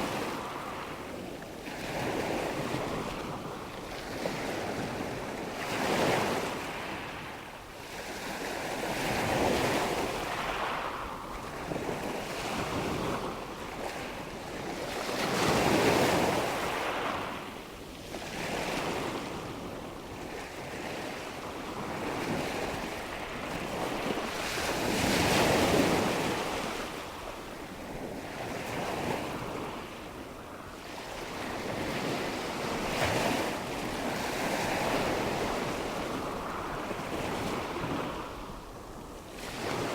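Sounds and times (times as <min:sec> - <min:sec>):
wind: 0:00.0 - 0:39.9.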